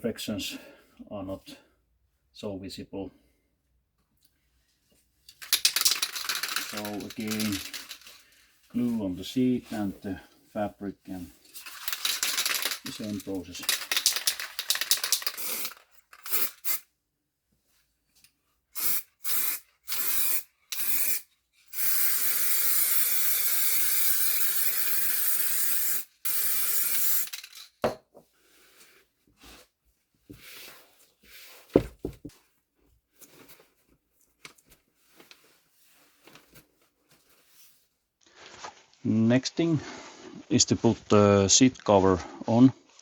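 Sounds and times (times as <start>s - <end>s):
handling rustles: 5.3s - 10.2s, 28.8s - 39.0s
aerosol spray hissing: 18.8s - 21.2s, 21.8s - 27.2s.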